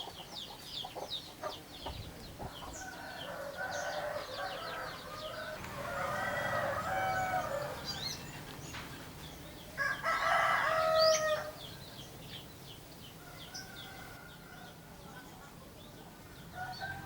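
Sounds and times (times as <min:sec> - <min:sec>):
small birds chirping: 0:00.0 - 0:17.0
rooster crowing: 0:02.7 - 0:08.4, 0:09.8 - 0:11.7, 0:13.2 - 0:14.8, 0:16.4 - 0:17.0.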